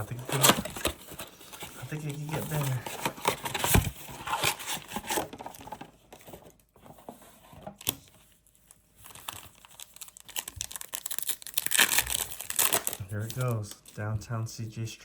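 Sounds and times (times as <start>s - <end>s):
foil wrapper crinkling and tearing: 8.5s - 14.0s.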